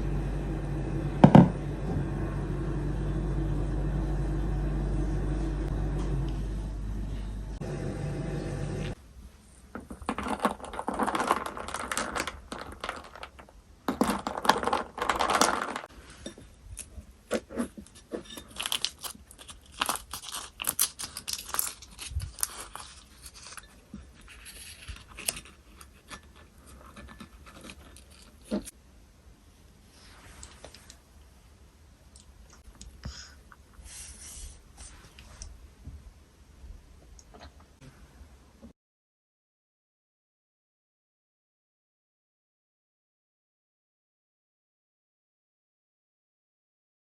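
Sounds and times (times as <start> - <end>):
steady low hum: 0.0 - 9.7
utensils clinking and scraping: 9.9 - 28.7.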